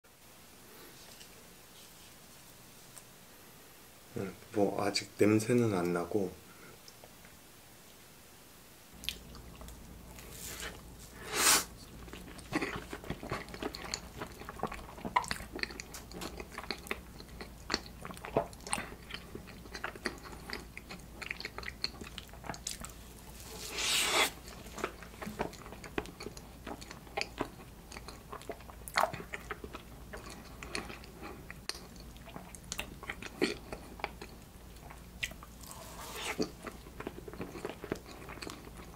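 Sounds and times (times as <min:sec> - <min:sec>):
wet chewing and lip smacks: 0:09.0 - 0:10.3, 0:11.8 - 0:23.0, 0:23.8 - 0:38.9.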